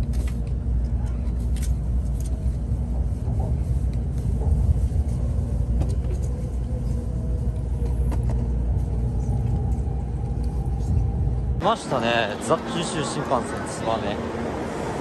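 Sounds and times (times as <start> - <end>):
train running low rumble: 0.0 - 15.0.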